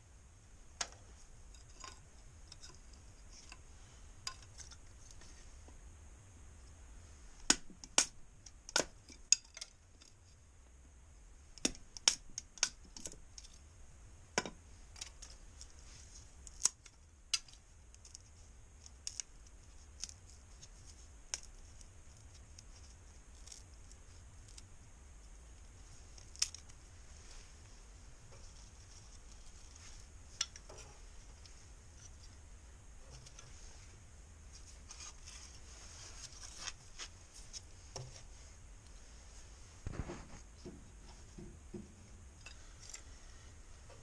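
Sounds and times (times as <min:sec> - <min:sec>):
leaves and kindling crackling: 0:14.7 - 0:40.6.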